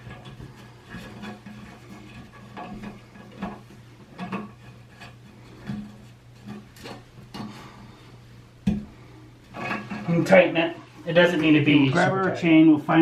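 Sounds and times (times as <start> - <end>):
small knocks: 0.0 - 7.6, 8.6 - 10.1.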